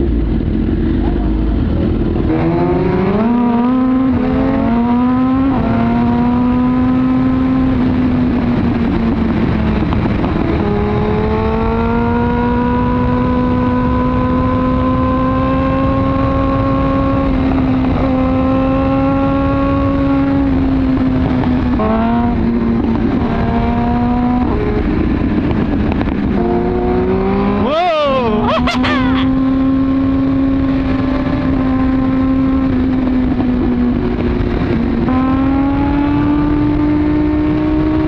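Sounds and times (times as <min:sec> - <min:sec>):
motorcycle engine revving: 0:00.0 - 0:38.0
wind noise: 0:00.0 - 0:38.0.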